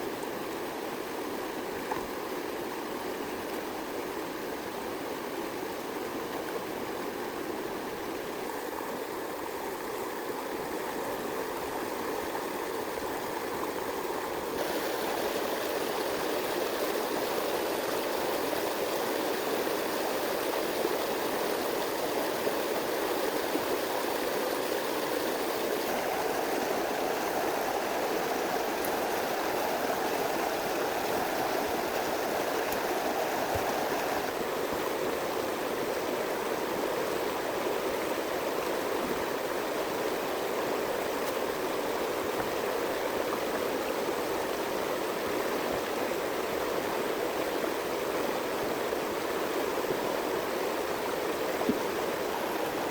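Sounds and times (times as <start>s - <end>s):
running water rushing: 0.0s - 52.9s.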